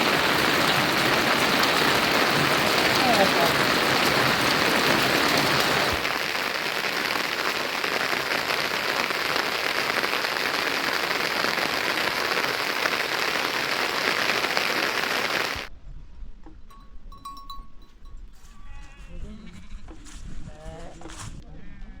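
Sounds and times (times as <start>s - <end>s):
steady rain falling: 0.0s - 15.7s.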